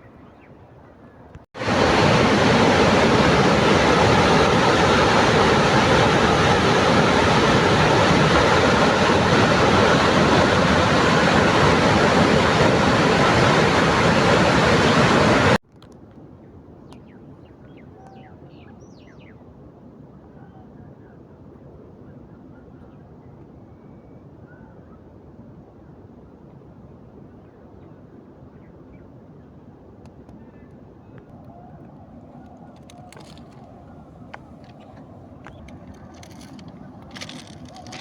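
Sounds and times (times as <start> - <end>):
loud steady rushing noise: 1.6 - 15.6, 32.4 - 38.0.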